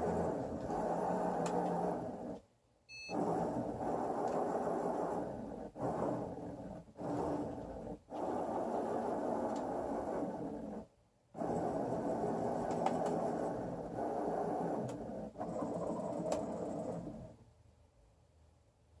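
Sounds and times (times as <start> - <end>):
robotic arm motors running: 3.1 - 10.8, 11.4 - 17.3.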